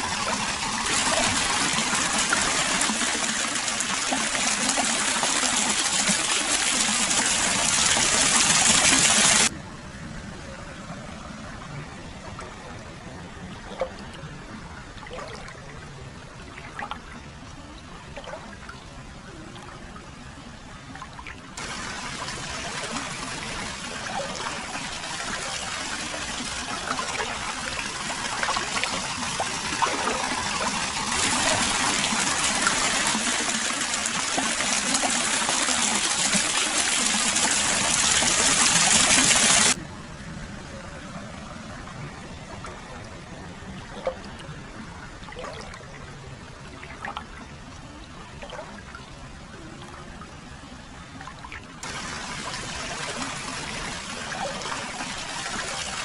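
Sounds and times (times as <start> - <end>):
water pouring and splashing: 0.0 - 9.5, 15.0 - 15.7, 16.5 - 17.2, 21.0 - 39.8, 43.8 - 47.4, 48.4 - 49.0, 51.2 - 56.0
water trickling and dripping: 20.8 - 39.8.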